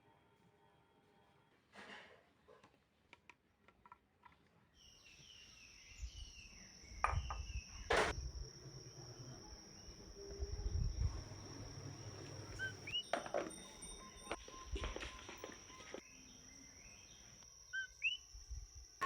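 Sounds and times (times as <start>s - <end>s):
high-pitched insect drone: 5.8s - 19.0s.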